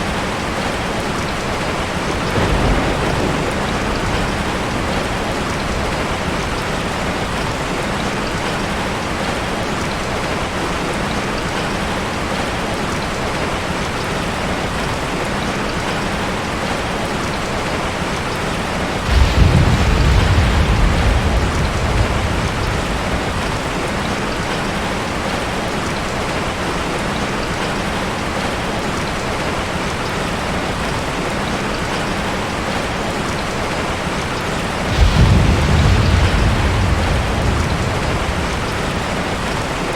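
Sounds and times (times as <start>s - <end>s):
steady rain falling: 0.0s - 39.9s
low roll of thunder: 0.1s - 9.1s, 18.3s - 25.4s, 34.6s - 39.9s.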